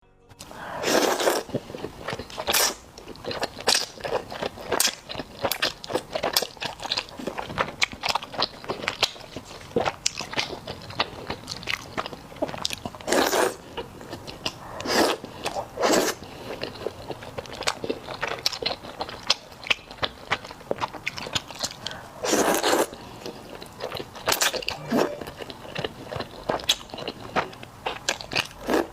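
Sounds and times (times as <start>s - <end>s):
slurping noodles: 0.4s - 2.8s, 11.9s - 16.9s, 21.6s - 23.0s
wet chewing and lip smacks: 1.1s - 28.9s.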